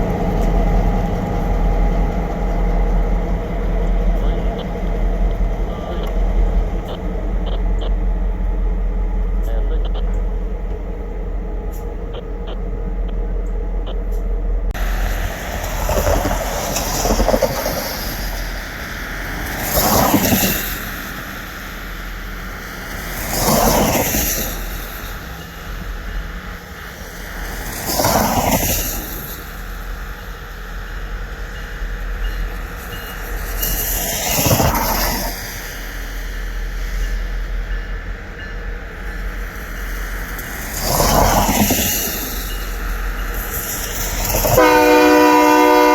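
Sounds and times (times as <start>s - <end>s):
freight train rumbling past: 0.0s - 45.9s.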